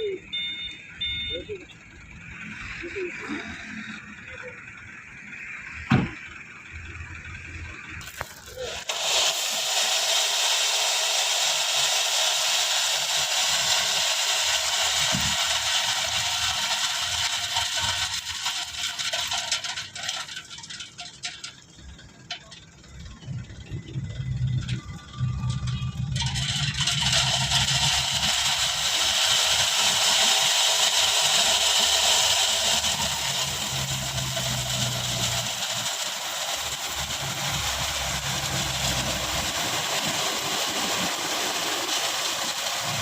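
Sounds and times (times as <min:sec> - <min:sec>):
gravel pouring from dump truck: 0:02.1 - 0:43.0.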